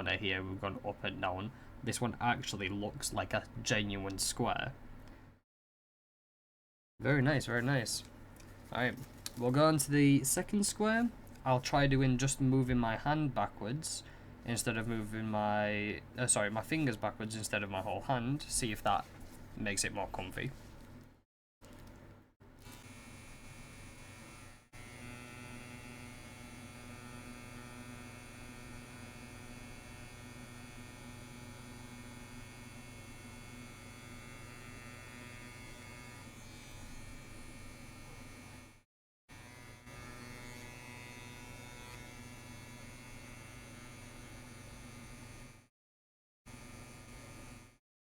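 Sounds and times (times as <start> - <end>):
tattoo machine buzzing: 22.6 - 45.7, 46.5 - 47.8.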